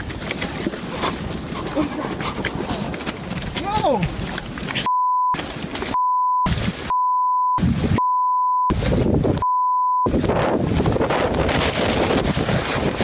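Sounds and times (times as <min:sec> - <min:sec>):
censor bleeps: 0:04.8 - 0:08.8, 0:09.4 - 0:10.1
rushing wind-like noise: 0:07.6 - 0:08.0, 0:08.7 - 0:09.4, 0:10.1 - 0:13.0.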